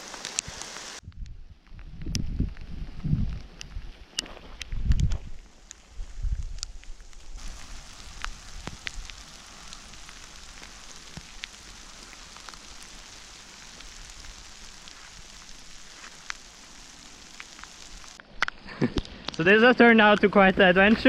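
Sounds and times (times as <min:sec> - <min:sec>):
heavy rain falling: 0:00.0 - 0:01.0, 0:07.0 - 0:21.0
close raindrops striking: 0:00.0 - 0:21.0.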